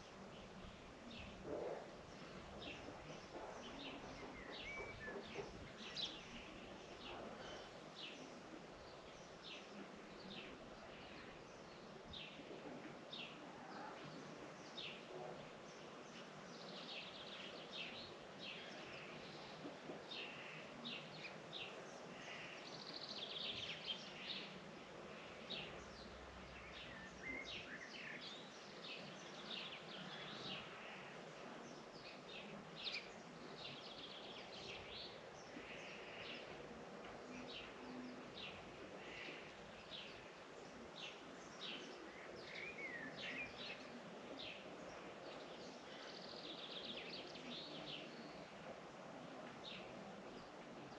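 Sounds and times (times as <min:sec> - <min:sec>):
small birds chirping: 0:13.2 - 0:50.9.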